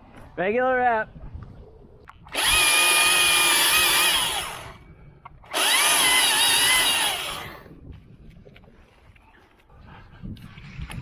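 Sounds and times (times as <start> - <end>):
chainsaw revving: 2.3 - 4.8, 5.5 - 7.6.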